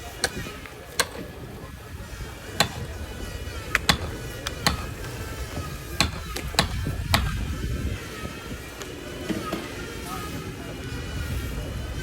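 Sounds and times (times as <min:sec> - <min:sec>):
hammer blows: 0:00.0 - 0:08.5.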